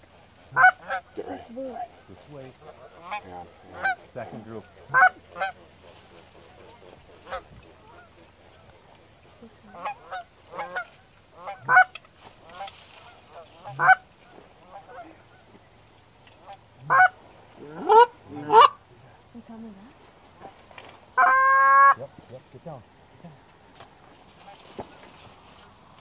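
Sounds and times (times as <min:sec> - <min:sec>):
goose honking: 0:00.5 - 0:08.7, 0:09.4 - 0:15.5, 0:16.4 - 0:18.8, 0:21.2 - 0:22.2, 0:24.3 - 0:24.7.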